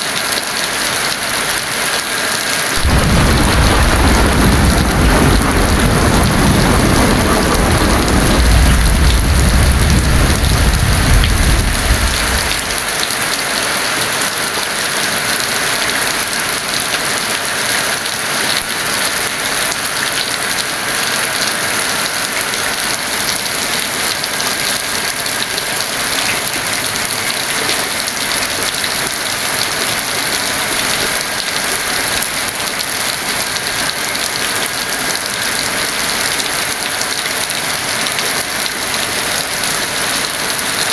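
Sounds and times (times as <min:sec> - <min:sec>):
heavy rain falling: 0:00.0 - 0:40.9
thunder rumbling: 0:02.8 - 0:13.2.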